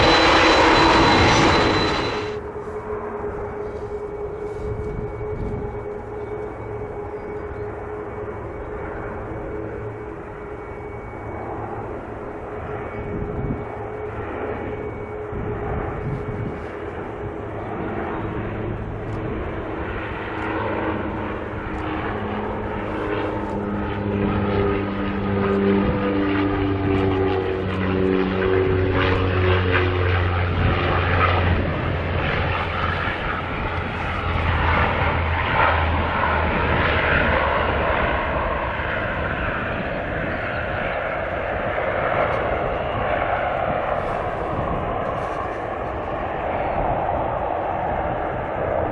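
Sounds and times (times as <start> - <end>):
turboprop engines running: 0.0 - 48.9.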